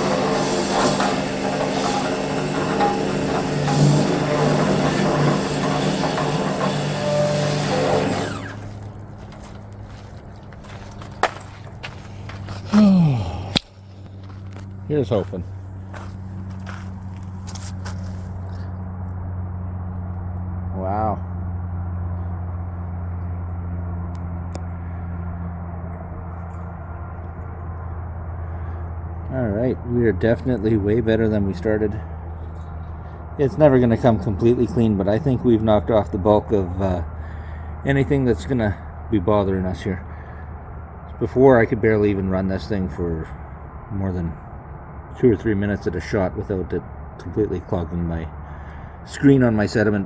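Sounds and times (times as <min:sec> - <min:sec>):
pressure washer spraying water: 0:00.0 - 0:08.9
low motor hum: 0:00.0 - 0:50.0.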